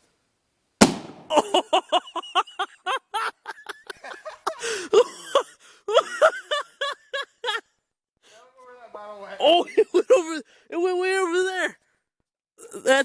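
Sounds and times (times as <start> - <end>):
bottle bomb bang: 0.8 - 1.4
person laughing: 1.3 - 7.7, 9.4 - 10.4.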